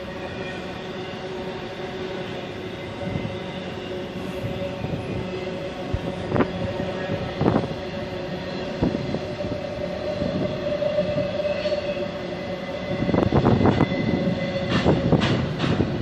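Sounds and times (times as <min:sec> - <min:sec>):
freight train rumble: 0:00.0 - 0:16.0
train wheels squealing: 0:00.0 - 0:16.0
wheels clacking over rail joints: 0:14.6 - 0:16.0.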